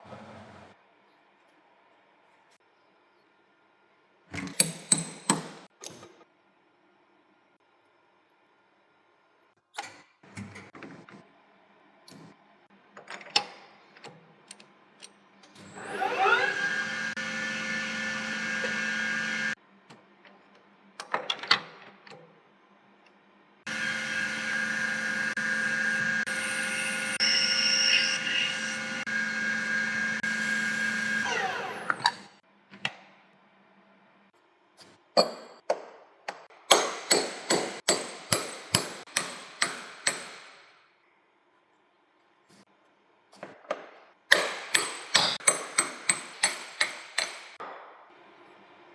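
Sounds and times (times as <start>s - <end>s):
power tool motor running: 15.6s - 19.6s, 23.7s - 32.4s.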